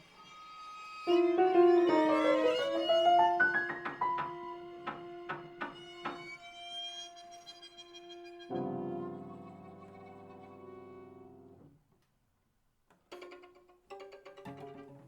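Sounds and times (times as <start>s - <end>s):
cello: 0.0s - 11.7s, 13.0s - 15.0s
violin: 0.0s - 11.7s, 12.9s - 15.0s
piano: 0.3s - 11.7s.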